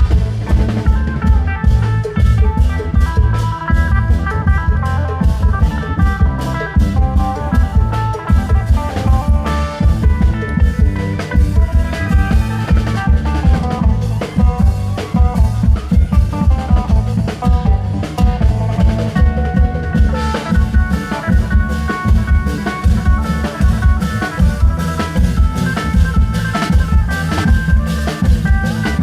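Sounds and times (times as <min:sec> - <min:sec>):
fast dense drumming: 0:00.0 - 0:29.0
melody over drums: 0:00.0 - 0:29.0.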